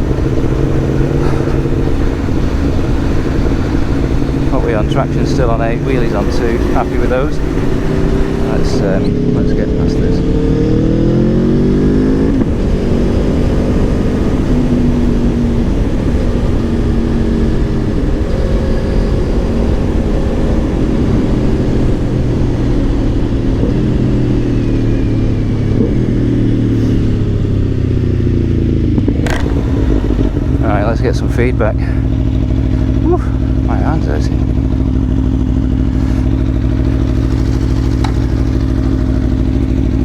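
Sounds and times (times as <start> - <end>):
wind rush over microphone: 0.0 - 9.4, 11.6 - 31.1
motorcycle engine accelerating: 0.0 - 40.0.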